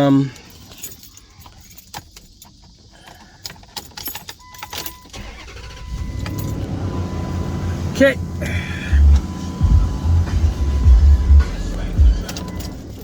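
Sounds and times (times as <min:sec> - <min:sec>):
keys jangling: 0:00.0 - 0:06.7, 0:11.3 - 0:13.0
car engine starting and running: 0:05.1 - 0:13.0.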